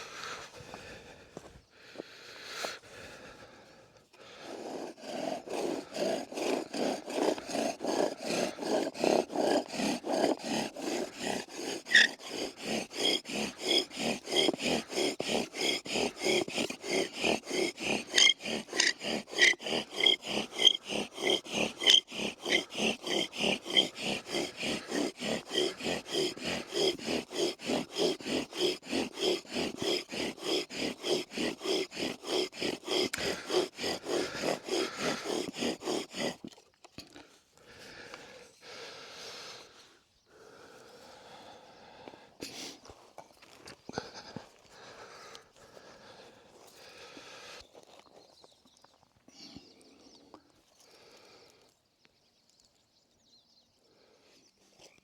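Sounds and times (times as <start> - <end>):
wooden spindle grinding in hearth board: 4.2 - 36.9.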